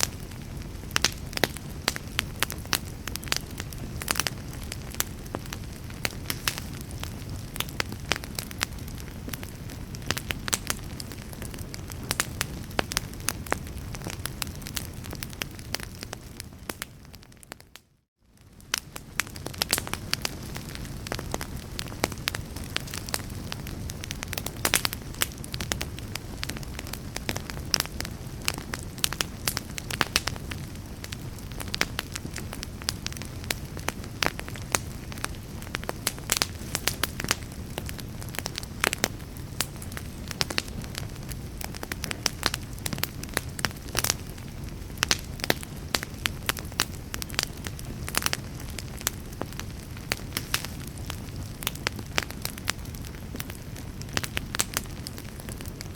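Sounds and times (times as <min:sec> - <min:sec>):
wood fire crackling: 0:00.0 - 0:55.9.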